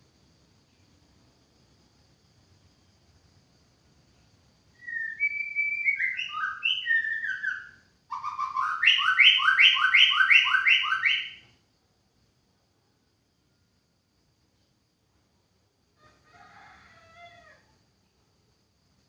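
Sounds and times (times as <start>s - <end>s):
shama singing whistled notes: 4.8s - 11.5s.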